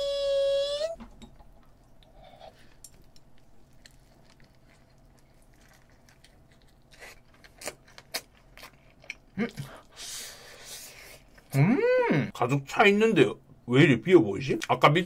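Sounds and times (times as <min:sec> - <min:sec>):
chewing with wet mouth sounds: 0:01.4 - 0:10.0.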